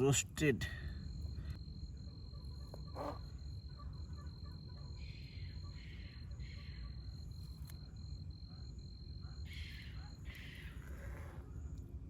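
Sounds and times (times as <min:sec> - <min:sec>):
faint rhythmic chirps: 0:00.0 - 0:12.0
insects trilling: 0:00.0 - 0:12.0.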